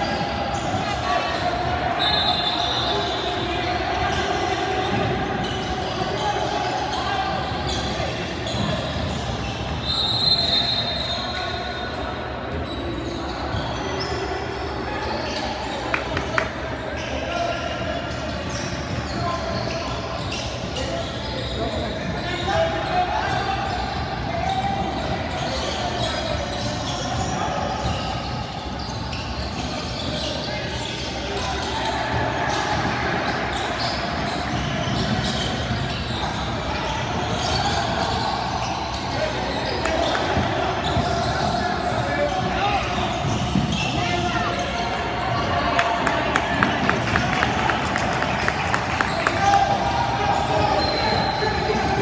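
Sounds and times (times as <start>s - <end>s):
referee's whistle: 2.0s - 3.4s, 9.8s - 11.4s
gym noise: 45.4s - 50.4s
basketball bouncing on court: 45.6s - 50.0s.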